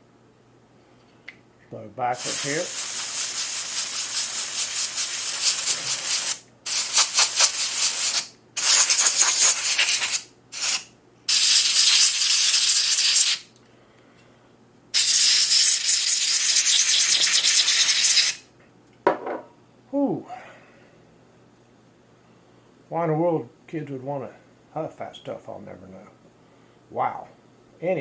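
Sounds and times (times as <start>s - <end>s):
compressed air hissing: 2.2s - 13.5s, 15.0s - 18.4s.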